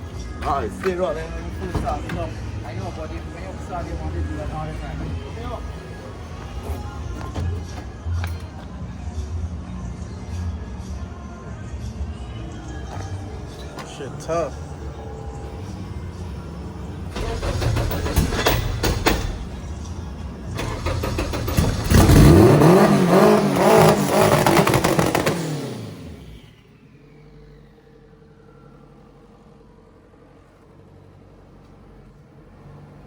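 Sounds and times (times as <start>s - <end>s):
loud car engine revving: 16.7s - 28.0s
sharp exhaust cracks: 17.1s - 26.5s.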